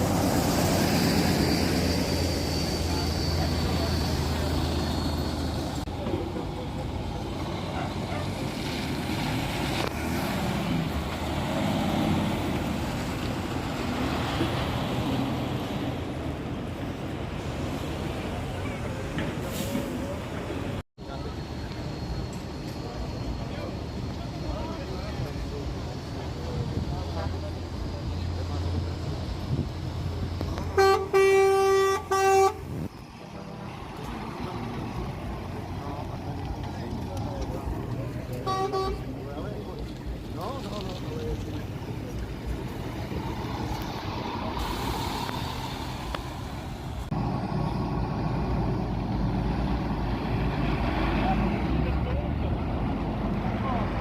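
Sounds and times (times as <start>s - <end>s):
low engine rumble: 0.0s - 54.0s
truck horn blasts: 30.6s - 32.8s, 38.4s - 39.1s.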